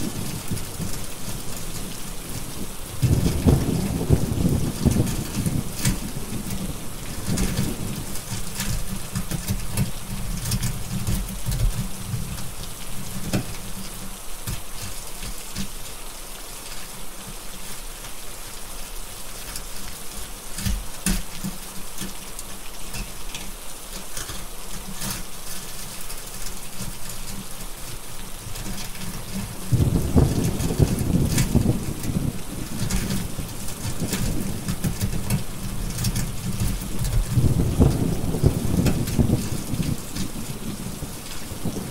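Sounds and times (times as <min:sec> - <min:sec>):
steady rain: 0:00.0 - 0:41.9
wood fire crackling: 0:00.0 - 0:41.9
low rumbling thunder: 0:02.2 - 0:09.0, 0:29.3 - 0:41.9.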